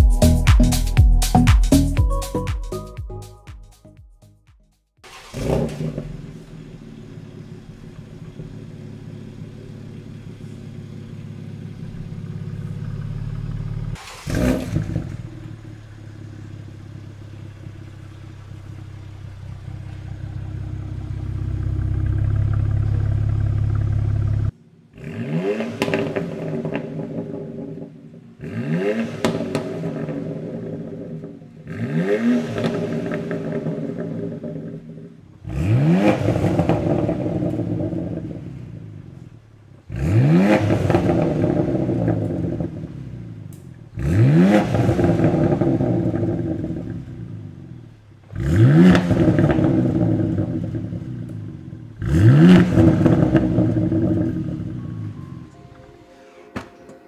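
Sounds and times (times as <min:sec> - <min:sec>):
car engine revving and idling: 0:05.0 - 0:55.6
car accelerating: 0:05.0 - 0:55.7.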